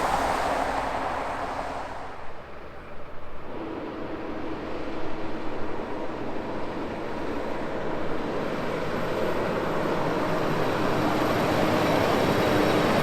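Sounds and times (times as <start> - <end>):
truck engine and tyre noise: 0.0 - 2.9.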